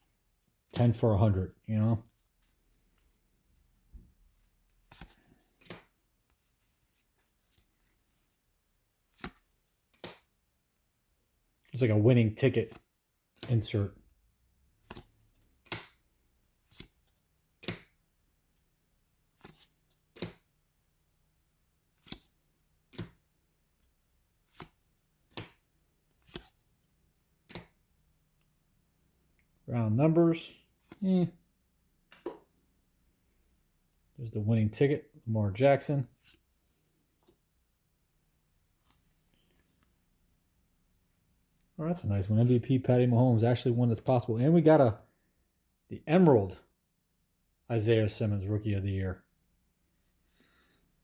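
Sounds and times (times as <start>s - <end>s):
cards flipping with snaps: 4.7s - 5.9s, 9.1s - 10.3s, 13.4s - 13.7s, 14.8s - 16.0s, 16.6s - 18.0s, 19.4s - 20.5s, 22.0s - 23.2s, 24.4s - 25.6s, 26.2s - 26.6s, 27.4s - 27.8s, 32.1s - 32.5s.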